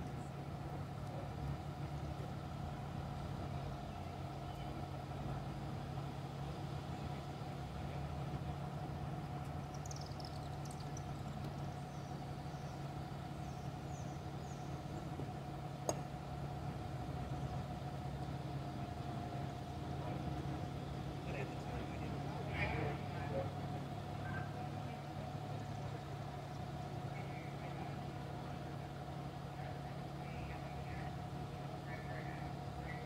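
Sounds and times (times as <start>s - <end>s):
vehicle engine idling: 0.0s - 33.0s.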